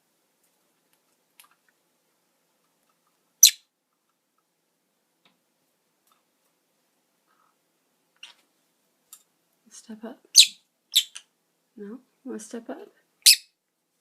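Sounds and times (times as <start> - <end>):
parrot chirp: 3.4 - 3.7, 10.3 - 11.3, 13.2 - 13.6.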